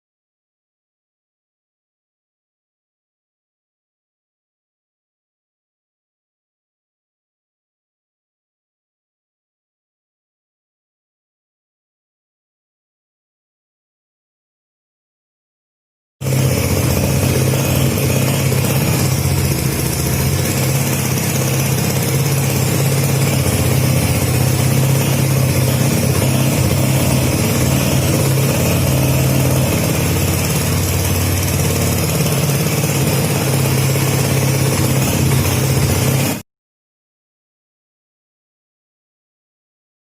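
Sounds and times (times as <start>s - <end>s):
scooter engine idling: 16.2s - 36.4s.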